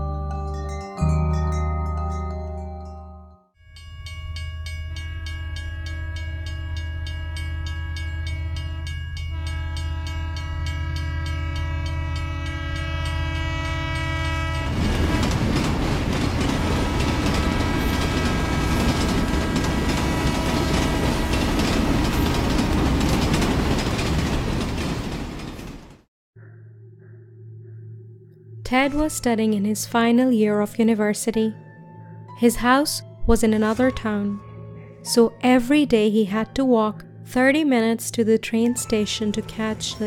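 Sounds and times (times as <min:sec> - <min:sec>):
train rumbling: 0:04.0 - 0:26.1
train horn blasts: 0:05.7 - 0:23.2
wheel clatter on rails: 0:14.5 - 0:26.0.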